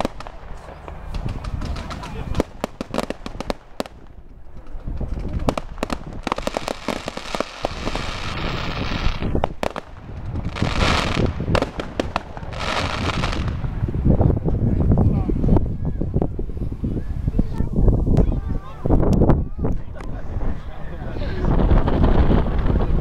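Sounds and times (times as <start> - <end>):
fireworks hissing: 0.0 - 4.2, 5.0 - 13.7
fireworks bangs: 0.0 - 14.1, 21.5 - 23.0.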